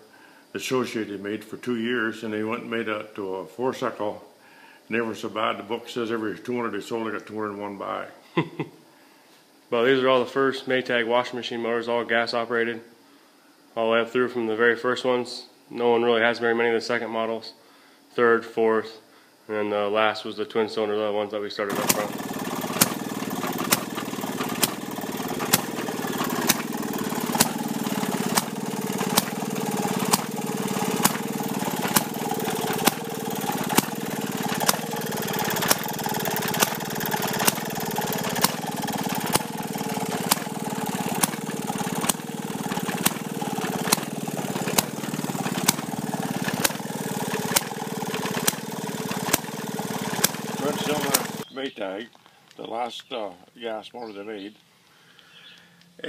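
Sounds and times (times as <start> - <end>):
sharp engine crack: 21.7 - 51.5
small gasoline engine running: 21.7 - 51.5.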